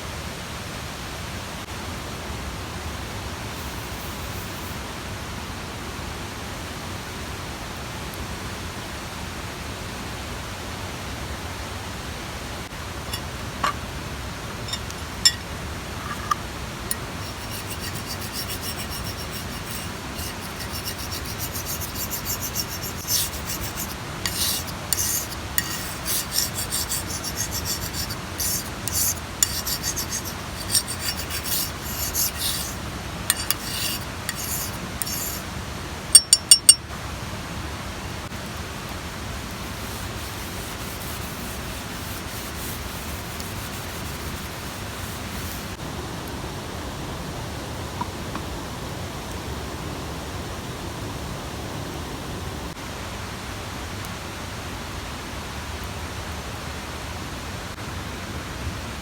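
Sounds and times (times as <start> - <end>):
scraping on a rough surface: 3.6 - 4.8, 13.1 - 13.8, 14.5 - 15.4, 16.0 - 35.5, 39.5 - 45.8.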